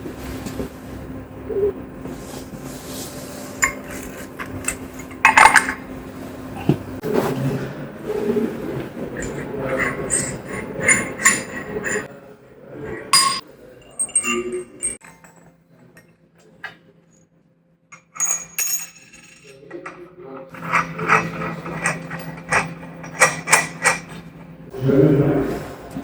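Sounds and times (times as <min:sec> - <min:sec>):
low steady hum: 0:00.0 - 0:13.7
metal clinks and knocks: 0:03.6 - 0:07.0, 0:09.2 - 0:12.1, 0:13.2 - 0:15.4, 0:18.0 - 0:19.9, 0:20.6 - 0:24.6.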